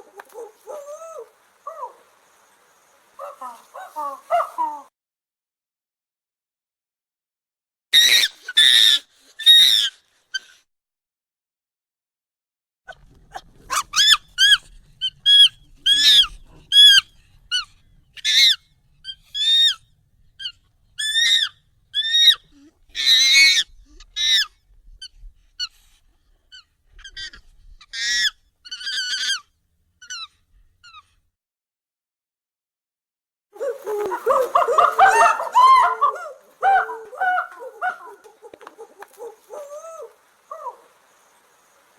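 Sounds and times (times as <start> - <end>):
high-pitched monkey calls: 8.0 - 10.6, 13.7 - 19.8, 20.4 - 24.6, 26.5 - 31.1, 33.6 - 40.9.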